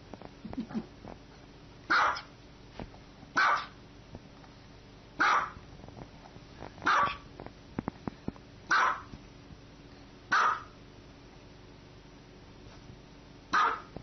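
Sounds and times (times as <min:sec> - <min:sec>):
small dog barking: 0:01.9 - 0:02.3, 0:03.4 - 0:03.8, 0:05.2 - 0:05.6, 0:06.8 - 0:07.2, 0:08.7 - 0:09.1, 0:10.3 - 0:10.8, 0:13.5 - 0:14.0.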